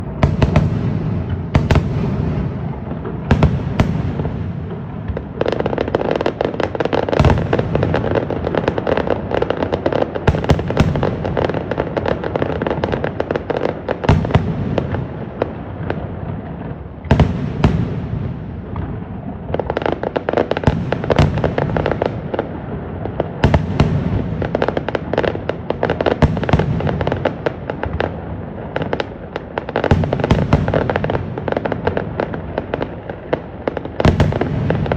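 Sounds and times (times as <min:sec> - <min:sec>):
fireworks bursting with sharp cracks: 0:00.0 - 0:34.9.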